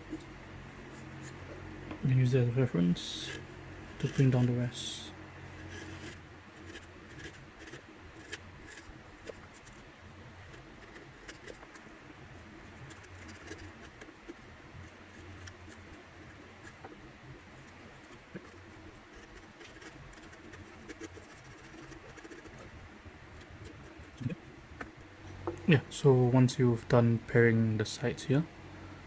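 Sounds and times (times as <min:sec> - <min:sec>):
small clicks of shavings: 0:12.7 - 0:22.7.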